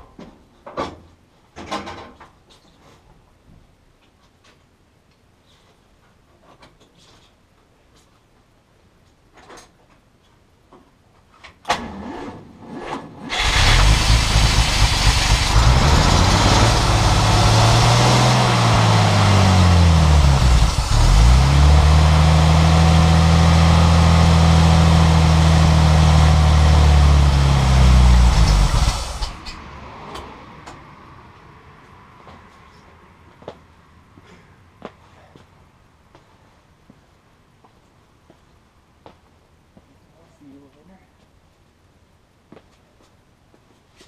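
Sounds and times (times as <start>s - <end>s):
car engine running and revving: 13.3s - 29.6s
engine cranking: 13.3s - 29.6s.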